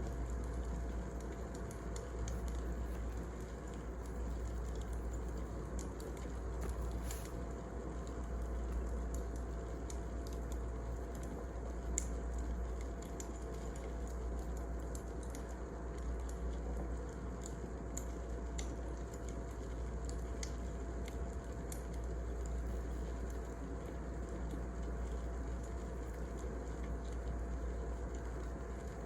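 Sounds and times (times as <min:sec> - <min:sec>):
wood fire crackling: 0:00.1 - 0:15.5.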